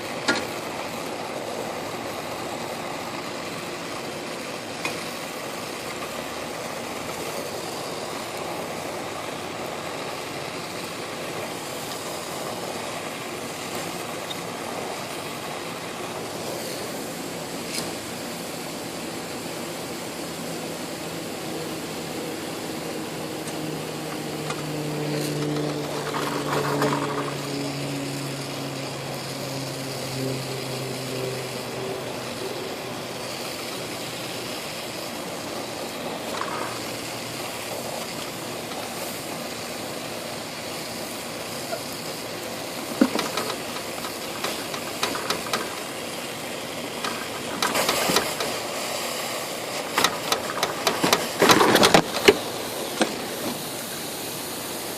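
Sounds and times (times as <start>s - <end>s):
torch flame hissing: 0.0s - 54.9s
low hum with overtones: 12.0s - 37.6s.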